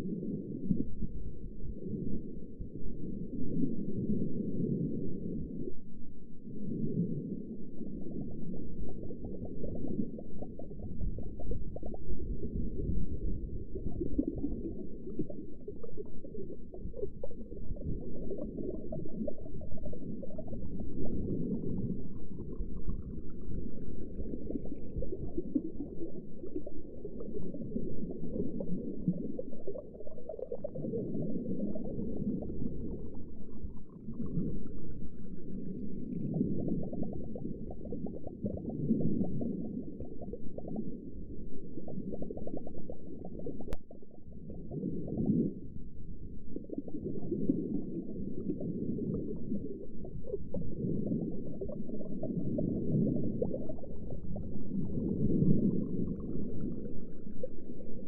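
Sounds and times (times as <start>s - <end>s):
underwater bubbling and rumbling: 0.0s - 58.0s.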